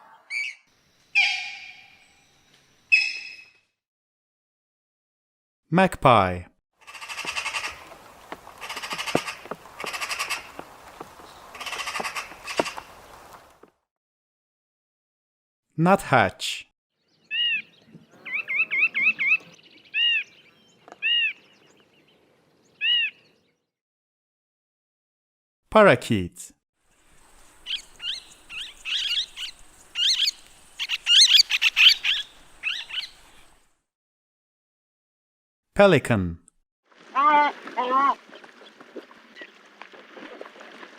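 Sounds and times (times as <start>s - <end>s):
magpie chattering: 6.8s - 8.0s, 8.6s - 10.6s, 11.6s - 12.7s
parakeet chirping: 27.7s - 33.2s.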